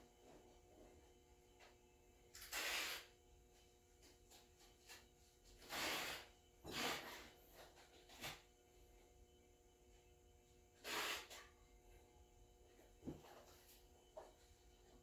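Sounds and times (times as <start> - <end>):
short bursts of hissing: 2.4 - 3.1, 5.7 - 7.1, 10.8 - 11.4.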